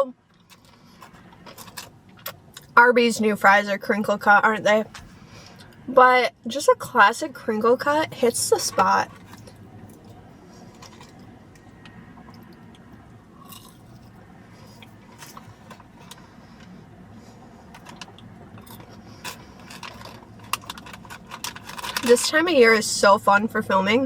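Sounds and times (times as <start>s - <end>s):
low steady hum: 0.0s - 24.0s
faint chewing: 8.7s - 22.0s.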